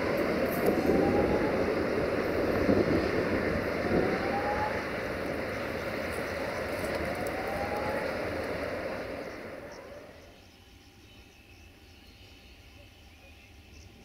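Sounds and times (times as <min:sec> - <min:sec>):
train rolling past: 0:00.0 - 0:11.0
faint rising whines: 0:00.0 - 0:12.6.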